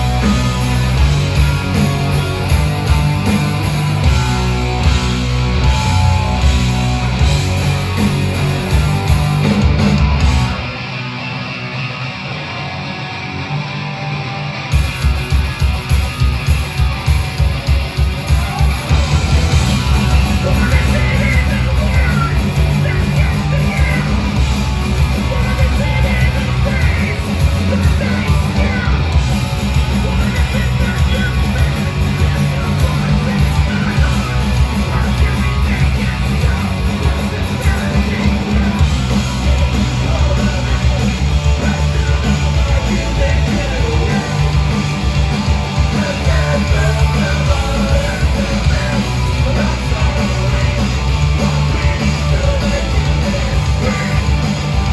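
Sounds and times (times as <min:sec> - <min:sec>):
fast drums: 0:00.0 - 0:11.6, 0:14.7 - 0:54.9
bass guitar: 0:00.0 - 0:54.9
distorted electric guitars: 0:00.0 - 0:54.9
shouted vocals: 0:18.1 - 0:54.9.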